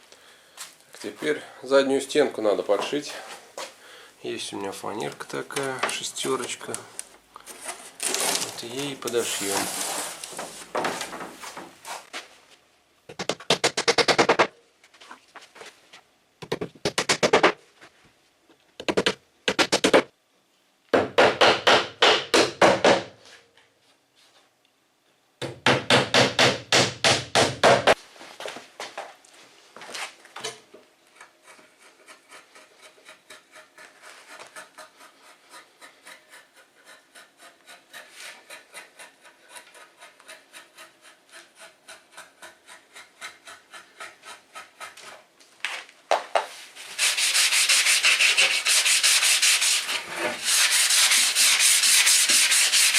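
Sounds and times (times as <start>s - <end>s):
hammer driving nails into wood: 25.4s - 28.0s
rhythmic rubbing on wood: 31.4s - 45.2s, 46.9s - 52.9s.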